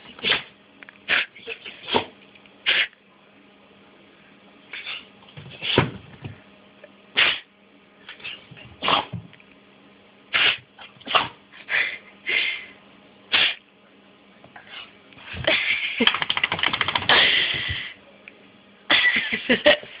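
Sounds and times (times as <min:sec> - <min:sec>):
dog sneezing: 0:00.2 - 0:00.5, 0:01.1 - 0:02.9, 0:04.7 - 0:05.9, 0:07.2 - 0:07.5, 0:08.1 - 0:09.1, 0:10.3 - 0:11.4, 0:13.3 - 0:13.6.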